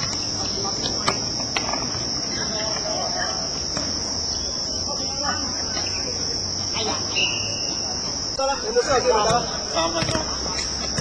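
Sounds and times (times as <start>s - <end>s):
faint distant voices: 0.0s - 11.0s
high-pitched insect drone: 0.3s - 9.1s.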